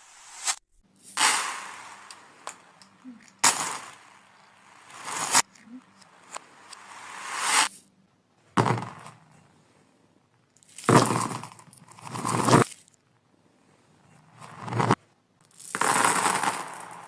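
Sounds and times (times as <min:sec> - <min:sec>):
marbles rattling on a marble run: 0:15.5 - 0:17.0.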